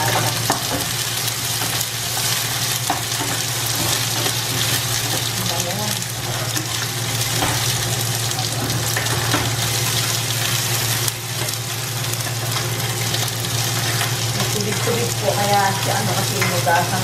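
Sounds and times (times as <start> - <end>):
spatula stirring in a pan: 0.0 - 7.8
pepper sizzling in a frying pan: 0.0 - 17.0.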